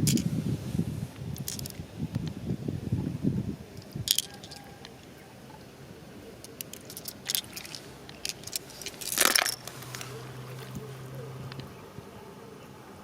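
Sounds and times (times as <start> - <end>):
light clicks of small objects: 6.4 - 10.8.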